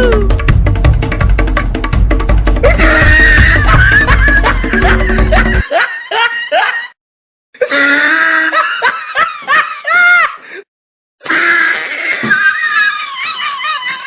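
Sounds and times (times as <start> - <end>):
background music: 0.0 - 5.7
high-pitched laughing and giggling: 2.6 - 7.0, 12.1 - 14.0.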